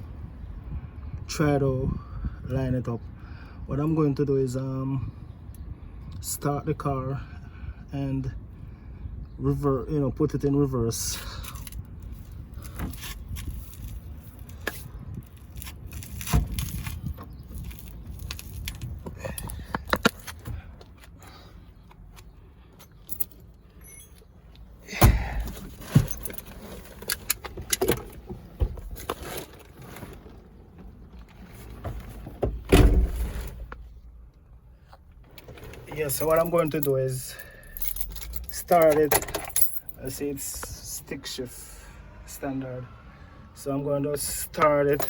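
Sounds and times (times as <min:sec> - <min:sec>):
metal jangling and clinking: 0:22.8 - 0:24.2, 0:35.5 - 0:40.2
knocks and clunks: 0:24.8 - 0:29.4, 0:30.0 - 0:33.9.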